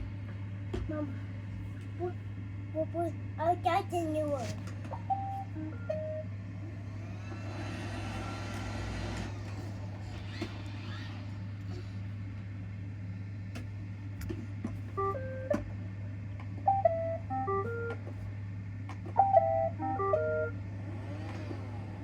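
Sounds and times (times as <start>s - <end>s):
robot vacuum humming: 5.1s - 12.1s, 19.2s - 22.0s.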